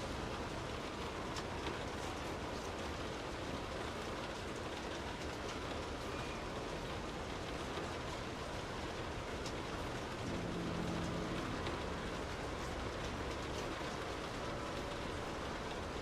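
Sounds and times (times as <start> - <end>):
rain falling: 0.0 - 16.0
low hum with pitched tones: 10.2 - 13.9.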